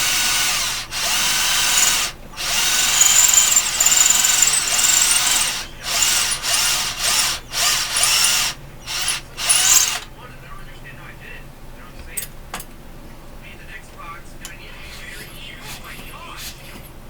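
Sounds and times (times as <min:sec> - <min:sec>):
cordless drill motor whining: 0:00.0 - 0:10.0.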